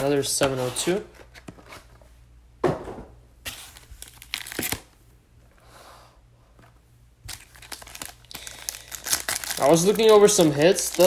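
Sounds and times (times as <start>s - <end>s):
plastic wrapping crinkling and tearing: 3.5s - 4.9s, 7.3s - 11.0s.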